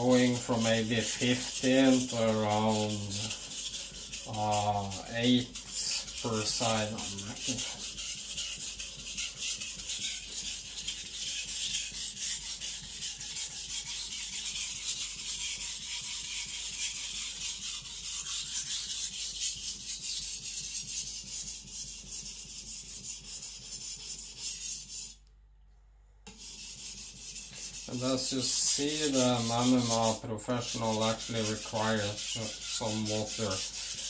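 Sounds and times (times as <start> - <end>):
knife scraping on whetstone: 0.0 - 25.2, 26.3 - 34.0.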